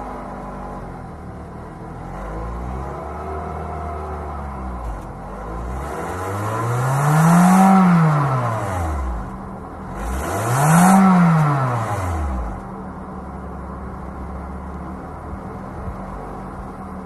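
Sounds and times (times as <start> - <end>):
car engine revving from idle: 0.0 - 12.8.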